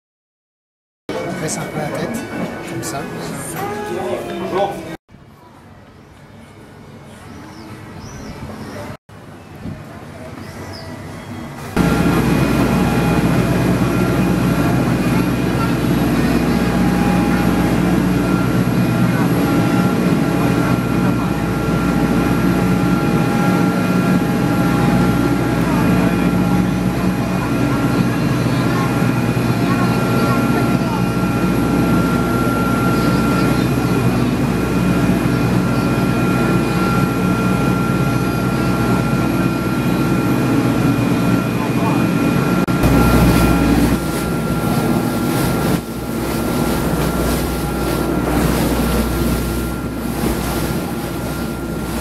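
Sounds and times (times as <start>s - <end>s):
boat engine running: 11.4s - 52.0s
water noise: 11.6s - 52.0s.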